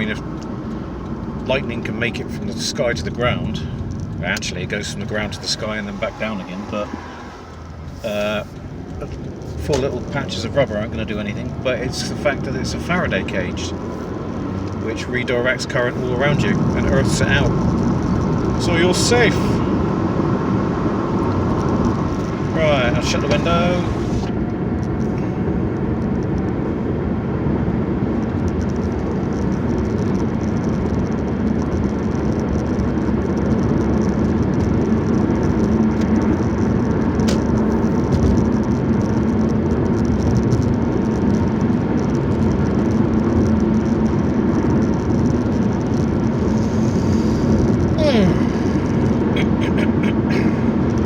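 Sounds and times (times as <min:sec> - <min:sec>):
car cabin road noise: 0:00.0 - 0:51.0
low engine hum: 0:00.0 - 0:51.0.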